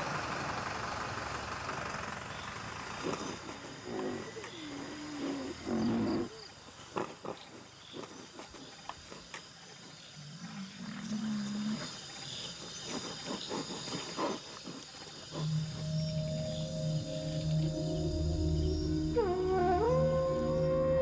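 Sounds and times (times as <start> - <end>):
rhinoceros calling: 12.6 - 21.0
music: 15.4 - 21.0.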